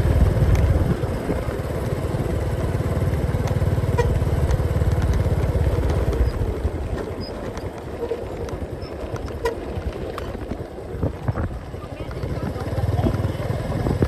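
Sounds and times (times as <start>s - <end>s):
motorcycle engine running: 0.0s - 14.0s
road and wind noise: 0.0s - 14.0s.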